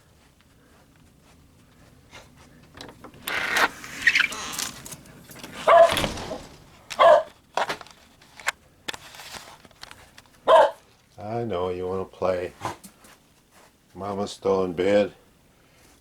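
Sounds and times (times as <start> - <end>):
dog barking: 5.7 - 5.9, 7.0 - 7.4, 10.4 - 10.8.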